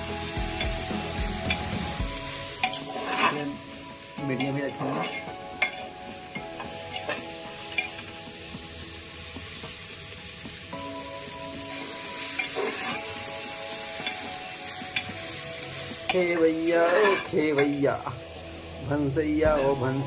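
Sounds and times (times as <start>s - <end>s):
vegetables sizzling in oil: 0.0s - 20.0s
spatula scraping a pot: 2.6s - 3.6s, 4.8s - 5.8s, 12.4s - 13.1s, 16.7s - 17.8s.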